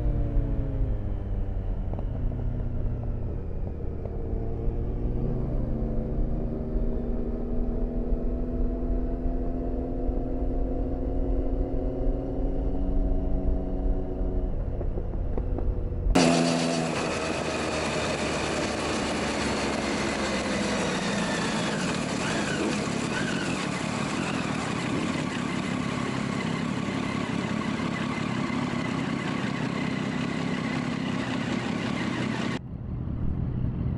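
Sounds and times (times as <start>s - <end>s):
motorcycle engines slowing: 14.0s - 32.6s.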